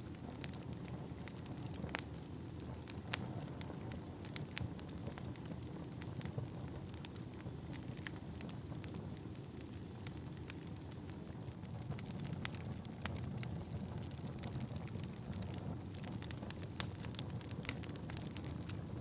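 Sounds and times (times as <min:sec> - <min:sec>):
fire crackling and popping: 0:00.0 - 0:19.0
faint high whistle: 0:06.4 - 0:11.4.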